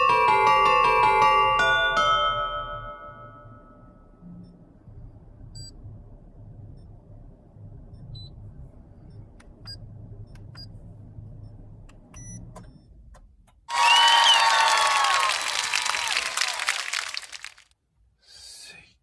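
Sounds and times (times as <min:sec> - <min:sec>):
car engine rumbling: 0:03.6 - 0:13.7.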